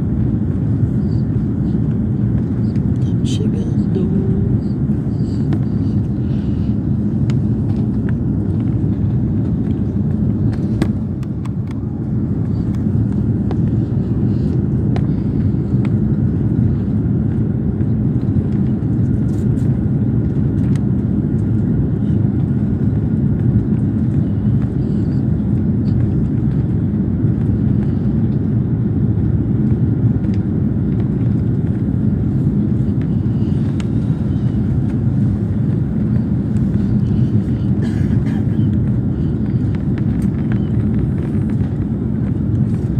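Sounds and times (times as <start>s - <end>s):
airliner cabin engine drone: 0.0s - 42.9s
faint steady whine: 0.0s - 42.9s.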